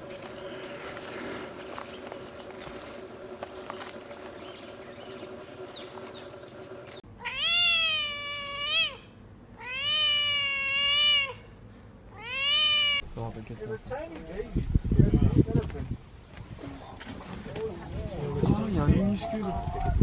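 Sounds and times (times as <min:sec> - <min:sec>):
cat meowing: 0:07.2 - 0:11.5, 0:12.1 - 0:13.0.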